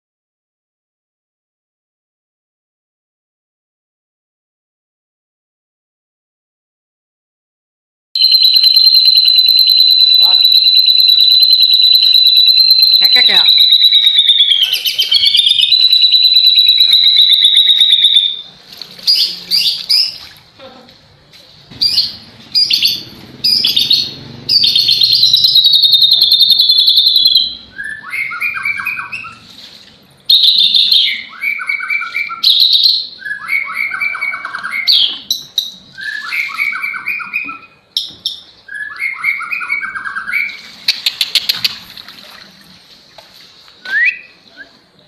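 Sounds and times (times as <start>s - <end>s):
bird singing shrill trills: 8.2s - 18.4s, 21.8s - 29.4s.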